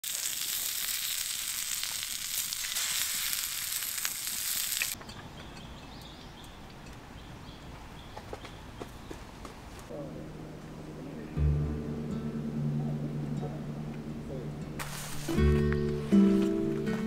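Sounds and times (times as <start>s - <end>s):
crackles and pops: 0.0s - 5.0s
food sizzling in a frying pan: 0.0s - 5.0s.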